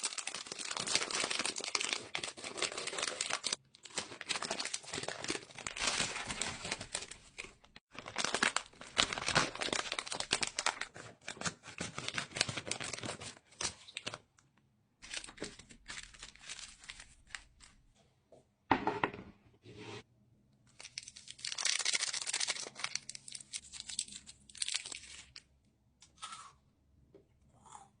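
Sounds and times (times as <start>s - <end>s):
wrappers torn and crinkled: 0.0s - 14.2s, 15.0s - 17.6s, 20.8s - 25.5s.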